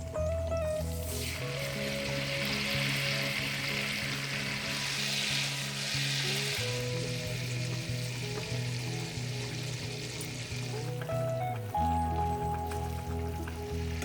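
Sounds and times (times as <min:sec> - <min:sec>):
background music: 0:00.0 - 0:14.0
food sizzling in a pan: 0:00.2 - 0:14.0.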